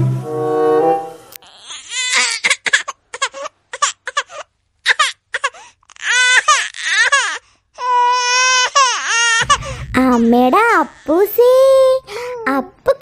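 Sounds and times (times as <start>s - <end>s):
baby crying: 1.4s - 9.6s.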